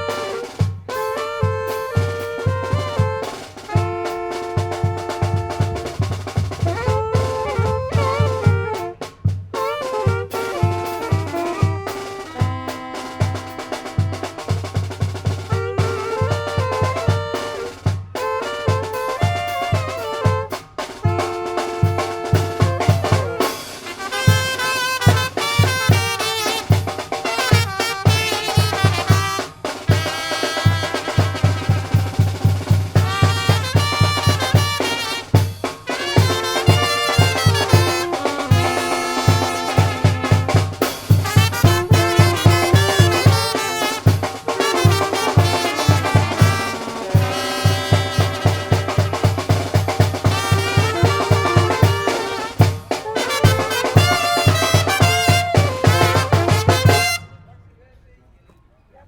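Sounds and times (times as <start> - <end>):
brass band playing: 0.0 - 57.6
bass drum pounding: 30.7 - 57.2.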